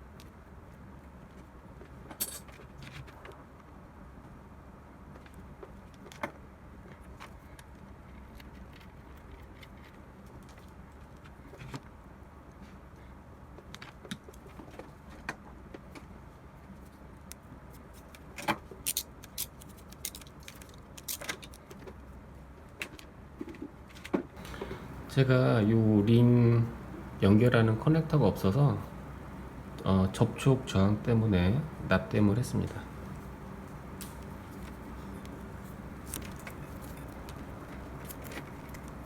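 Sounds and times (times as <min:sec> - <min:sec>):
low steady hum: 0:24.4 - 0:39.0.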